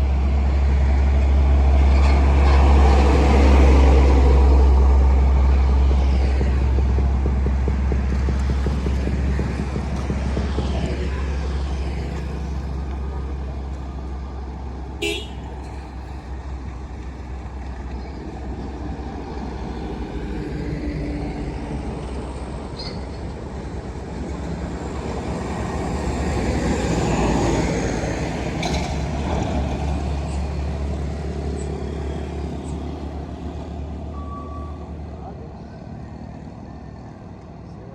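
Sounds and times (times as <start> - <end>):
truck engines rumbling past: 0.0 - 37.9
vehicle horn toot: 15.0 - 15.8.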